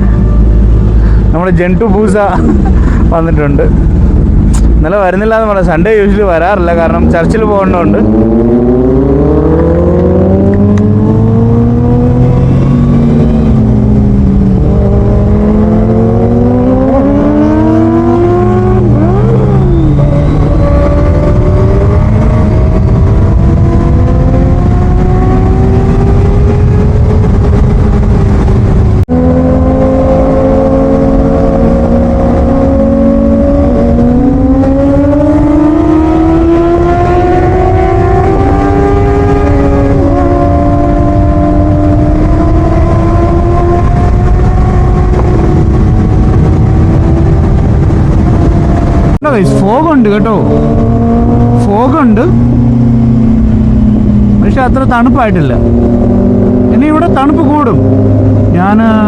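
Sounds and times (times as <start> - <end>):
low road noise: 0.0 - 59.0
motorcycle engine accelerating: 0.0 - 59.0.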